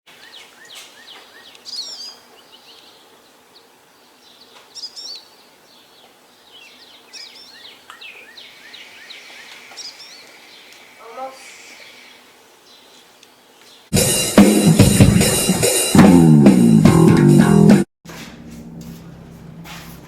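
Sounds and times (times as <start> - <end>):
faint background noise: 0.1 - 13.9
birds chirping: 0.1 - 16.0.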